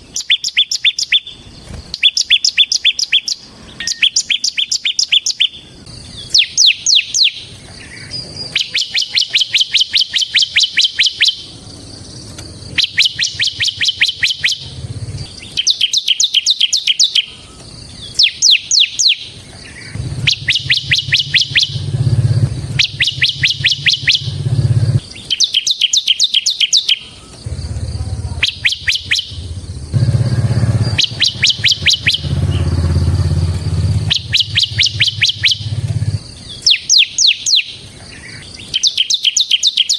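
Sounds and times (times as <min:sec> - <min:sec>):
bird singing rattling chips: 0:00.0 - 0:21.8, 0:22.7 - 0:24.4, 0:25.0 - 0:27.4, 0:30.9 - 0:39.9
low hum: 0:14.6 - 0:15.3, 0:20.0 - 0:25.0, 0:27.4 - 0:36.2.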